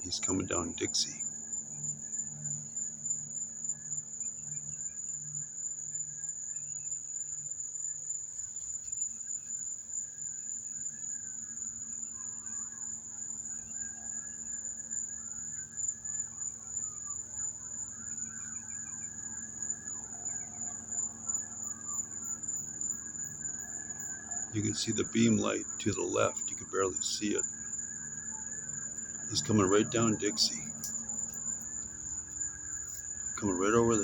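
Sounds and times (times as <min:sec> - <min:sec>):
high-pitched insect chorus: 0:00.0 - 0:34.0
distant police sirens wailing: 0:29.3 - 0:30.9.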